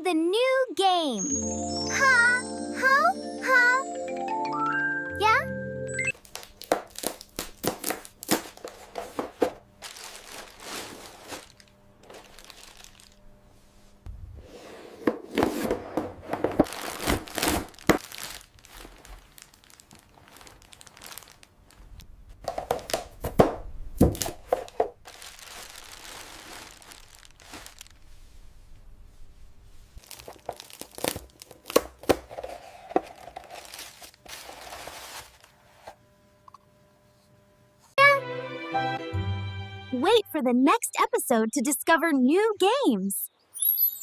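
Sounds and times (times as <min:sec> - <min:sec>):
packaging being torn and crumpled: 0:06.2 - 0:08.8, 0:09.8 - 0:13.2, 0:16.6 - 0:22.0, 0:25.0 - 0:28.0, 0:30.0 - 0:35.5.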